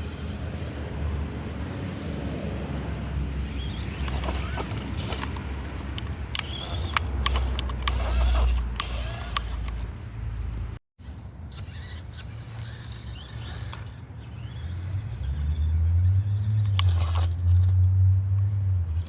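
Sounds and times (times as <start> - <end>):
rc truck electric motor whining: 0.0 - 9.9, 11.0 - 19.0.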